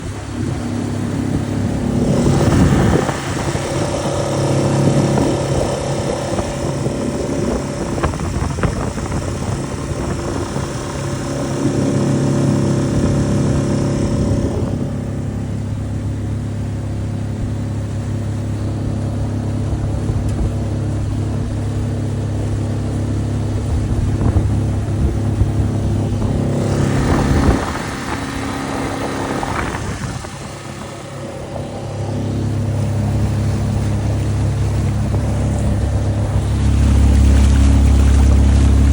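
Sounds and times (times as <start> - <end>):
outboard motor running: 0.0 - 38.9
rushing wind and water: 0.0 - 38.9.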